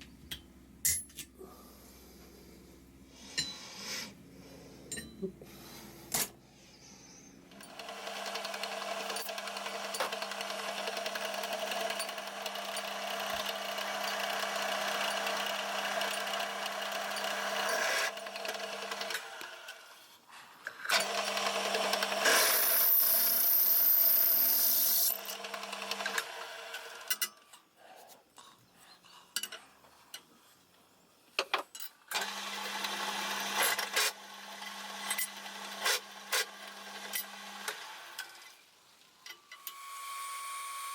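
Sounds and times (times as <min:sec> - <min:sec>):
power tool grinding steel: 0:11.4 - 0:19.8, 0:21.0 - 0:25.4.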